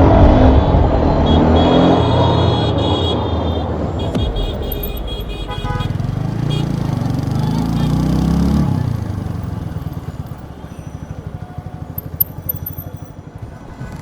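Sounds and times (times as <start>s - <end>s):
motorcycle engine idling: 3.6s - 13.5s.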